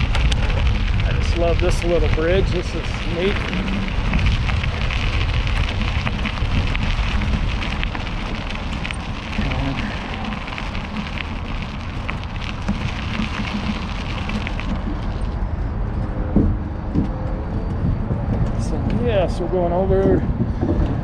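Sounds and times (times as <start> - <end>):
bike tyres crackling: 0.0 - 15.9
wind on microphone: 0.0 - 21.0.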